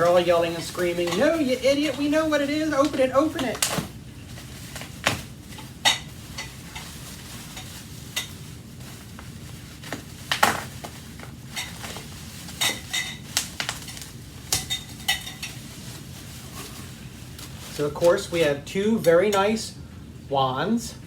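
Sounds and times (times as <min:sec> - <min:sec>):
metal vacuum wands clinking: 0:00.0 - 0:03.7.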